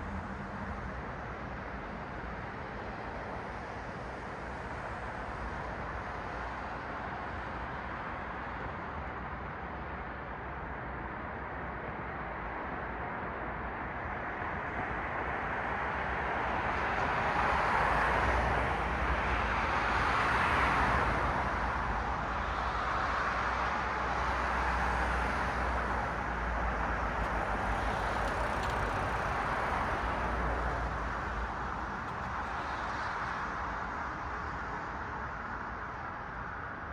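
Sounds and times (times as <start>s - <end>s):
cars passing: 23.9s - 34.0s.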